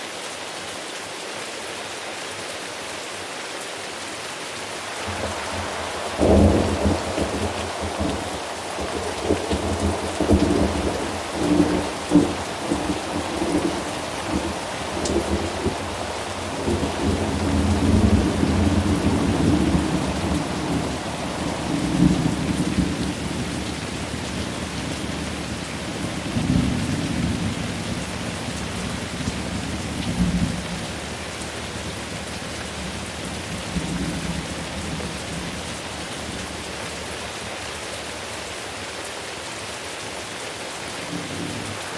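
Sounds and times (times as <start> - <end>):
steady rain: 0.0 - 41.9
rolling thunder: 5.0 - 31.3.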